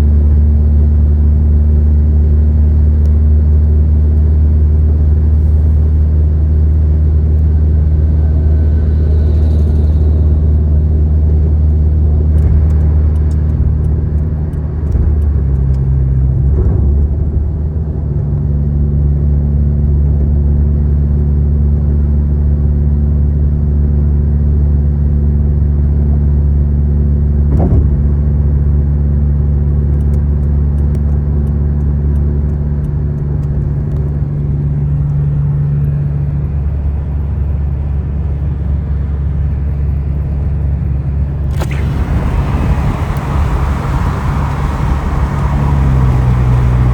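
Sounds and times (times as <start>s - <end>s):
car engine and tyre drone: 2.2s - 19.8s, 29.8s - 46.9s
brief knock: 27.5s - 28.2s.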